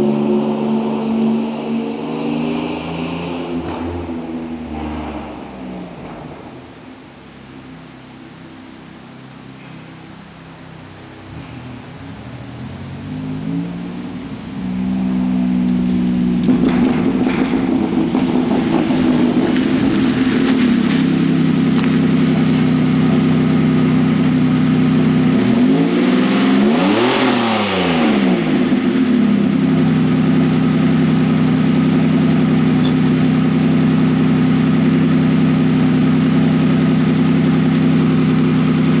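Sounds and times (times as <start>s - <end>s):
engine revving: 0.0s - 6.6s, 11.2s - 39.0s
pickup truck engine idling: 6.3s - 25.4s.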